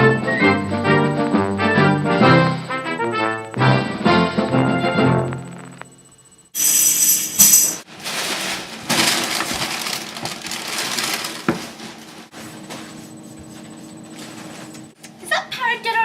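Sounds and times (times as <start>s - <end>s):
music: 0.0s - 5.8s
jingling shake: 6.6s - 7.8s
rustling clattering noise: 6.6s - 14.7s.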